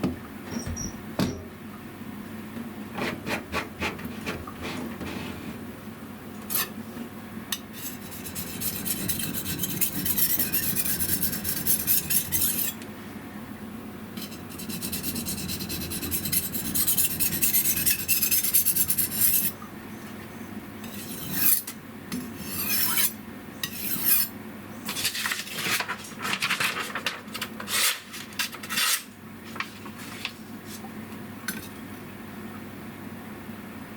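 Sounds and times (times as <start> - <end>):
knife scraping on whetstone: 7.8 - 12.8, 14.2 - 19.6, 20.8 - 21.8, 22.4 - 24.3, 27.6 - 29.1.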